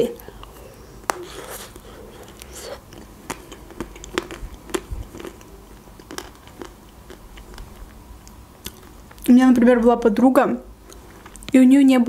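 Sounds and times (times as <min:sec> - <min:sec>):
chocolate coating cracking: 0:00.0 - 0:09.4
chewing with wet mouth clicks: 0:00.2 - 0:09.3, 0:10.8 - 0:11.6.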